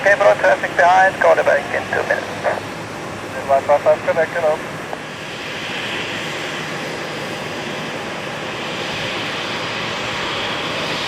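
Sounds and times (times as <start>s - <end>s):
turboprop engines running: 0.0s - 11.0s.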